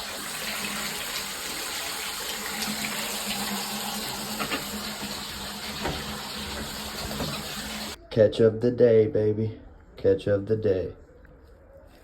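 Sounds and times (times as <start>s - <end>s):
water running through drain: 0.0s - 8.0s.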